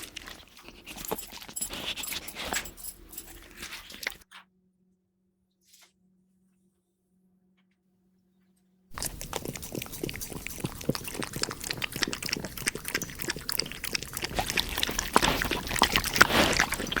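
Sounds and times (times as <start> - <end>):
wet mouth eating sounds: 0.0 - 4.2, 8.9 - 17.0.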